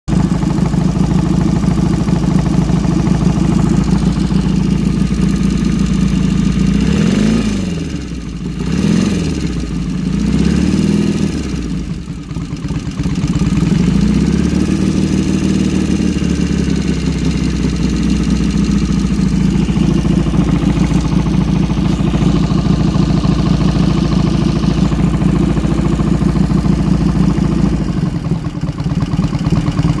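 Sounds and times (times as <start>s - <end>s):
motorcycle engine idling and revving: 0.1s - 30.0s.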